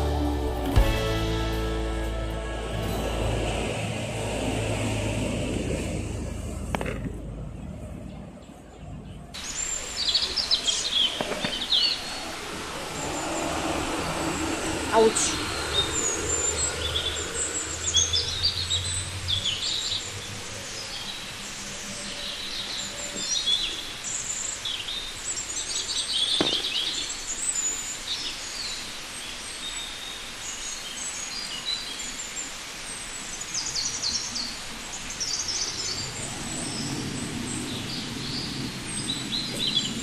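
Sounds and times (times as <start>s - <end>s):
low rumble: 0.0s - 8.4s
outdoor background hiss: 0.0s - 40.0s
small birds chirping: 5.7s - 40.0s.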